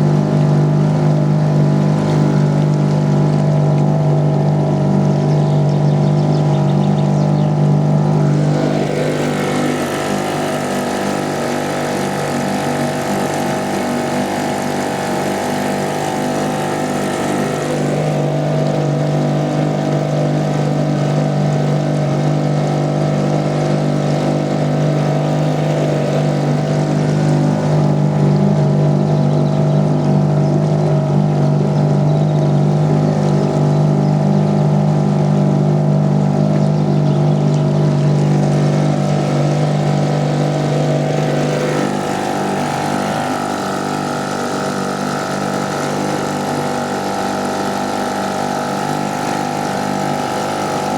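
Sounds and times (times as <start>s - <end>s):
outboard motor humming: 0.0s - 50.9s
rushing hiss of water or wind: 8.0s - 20.2s, 38.2s - 50.9s.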